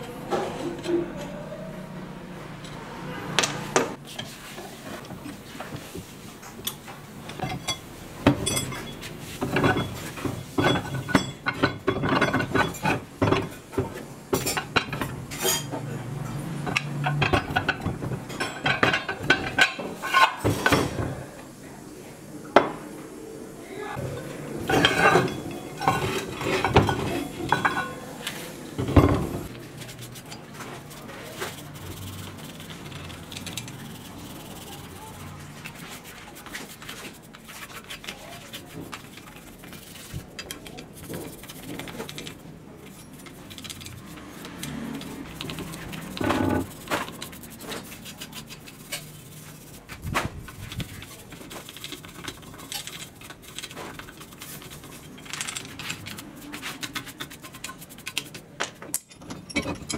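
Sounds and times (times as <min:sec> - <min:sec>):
heavy iron pieces clanking: 0:24.6 - 0:28.0.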